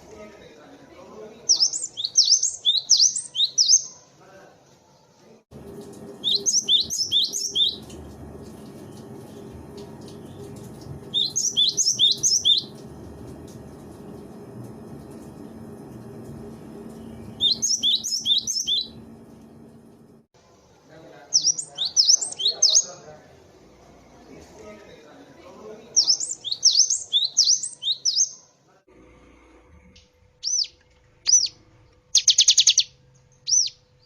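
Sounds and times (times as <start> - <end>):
bird singing high notes: 6.2 - 8.0, 11.1 - 12.8, 17.0 - 19.1
low background noise: 17.8 - 28.9.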